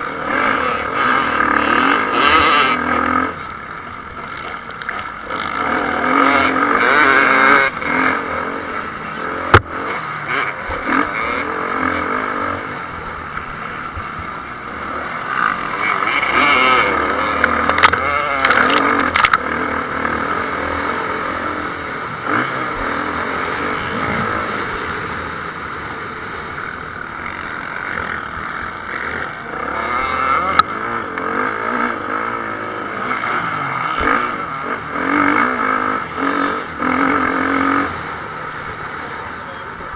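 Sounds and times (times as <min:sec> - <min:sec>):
motocross bike engines revving: 0:00.0 - 0:39.9
clicks: 0:17.4 - 0:19.4.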